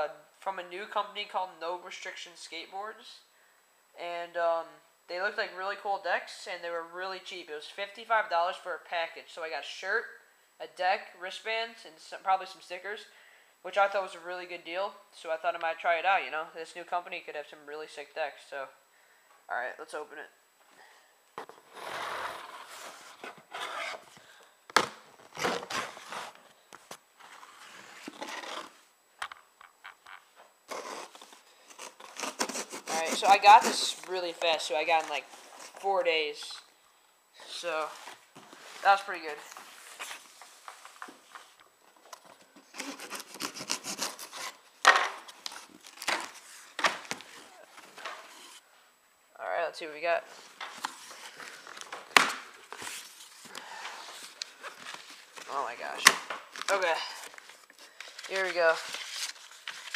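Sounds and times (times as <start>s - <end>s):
cardboard rubbing and scraping: 21.4s - 24.1s, 30.7s - 34.1s
cardboard ripping: 21.7s - 24.1s, 24.8s - 26.4s, 30.7s - 34.1s, 42.7s - 44.6s.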